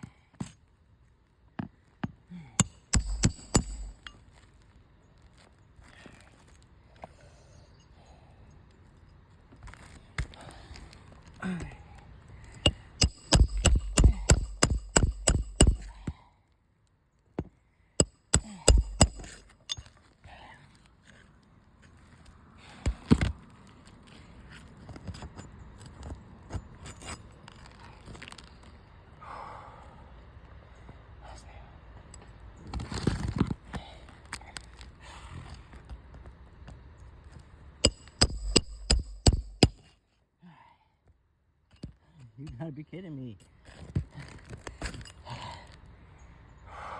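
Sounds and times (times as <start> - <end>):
hammer blows on shingle roof: 2.0 - 4.2, 12.6 - 16.2, 18.0 - 19.8, 37.8 - 39.9.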